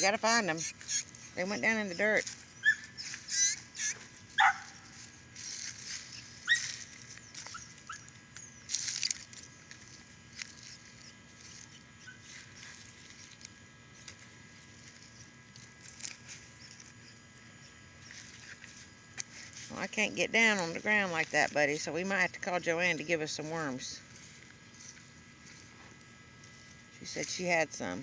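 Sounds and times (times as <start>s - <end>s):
animal chirps and squeaks: 0.0s - 4.9s, 5.8s - 9.0s.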